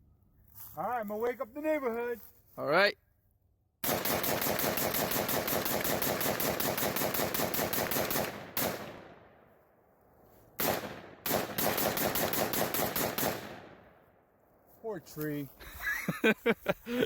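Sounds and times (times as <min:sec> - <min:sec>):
rapid gunfire: 0:03.8 - 0:09.1, 0:10.6 - 0:13.8
single gunshots: 0:03.8 - 0:09.3, 0:10.6 - 0:14.0.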